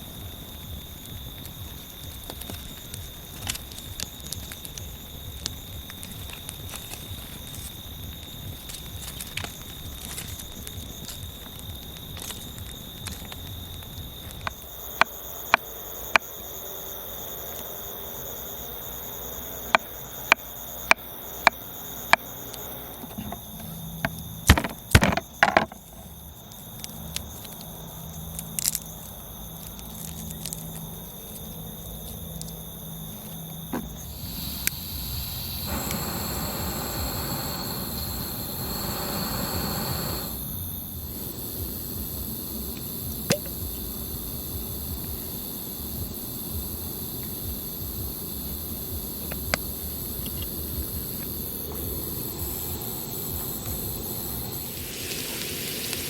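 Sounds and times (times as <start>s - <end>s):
high-pitched insect chirring: 25.3s - 56.0s
soft rushing noise: 34.0s - 41.3s, 52.4s - 56.0s.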